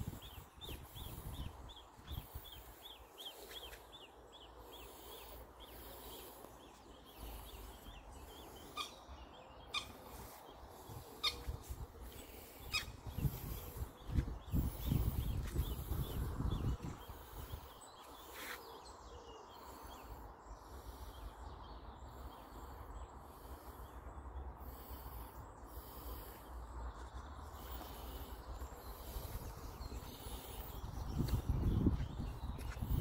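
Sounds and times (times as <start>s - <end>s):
sharp bird calls: 0.0s - 33.0s
songbird singing: 0.0s - 33.0s.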